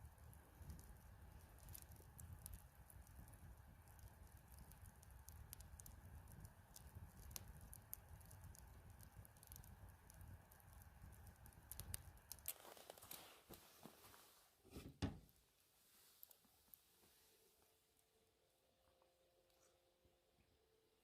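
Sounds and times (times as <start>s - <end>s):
campfire crackling: 0.0s - 13.6s.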